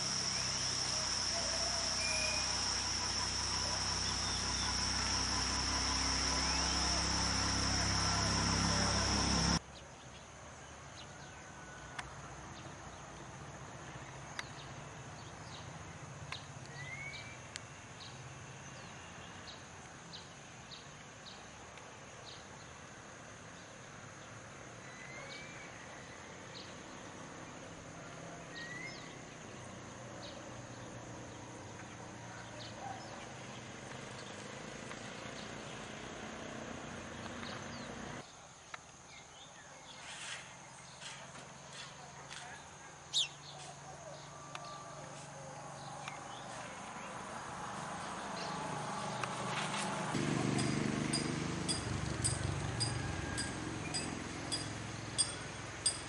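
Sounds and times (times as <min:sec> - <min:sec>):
high-pitched insect drone: 0:00.0 - 0:09.6, 0:50.1 - 0:56.0
rising bird chirps: 0:00.0 - 0:09.6, 0:50.6 - 0:56.0
sharp bird ticks: 0:50.6 - 0:56.0.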